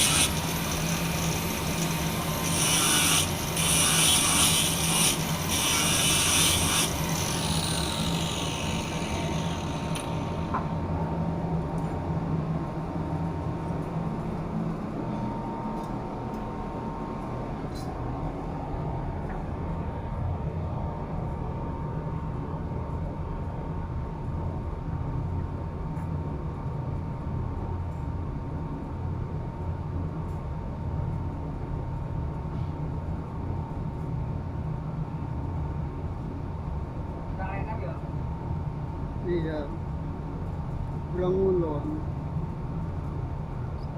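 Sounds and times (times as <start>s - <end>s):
power tool rasping: 0.0s - 10.5s
low machinery drone: 0.0s - 43.9s.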